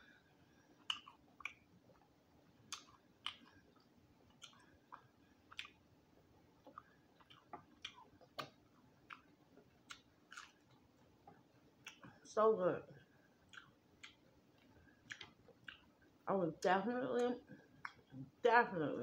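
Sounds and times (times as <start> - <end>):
chewing crispy food: 0.0 - 12.4, 13.0 - 16.2, 17.4 - 18.4.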